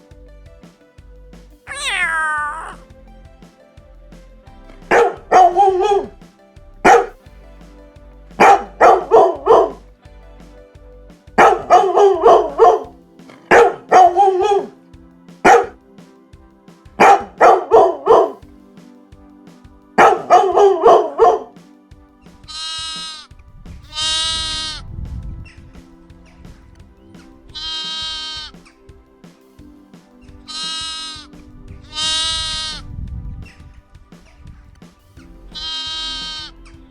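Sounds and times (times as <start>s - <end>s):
faint background music: 0.0s - 36.9s
dog barking: 6.9s - 7.1s, 13.5s - 14.7s, 15.5s - 15.7s
long bleats: 35.6s - 36.5s.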